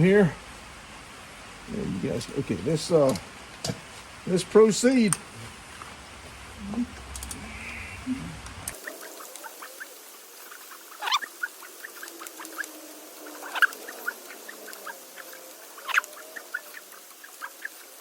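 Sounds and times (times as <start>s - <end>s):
light clicks of engine turning: 3.0s - 3.7s.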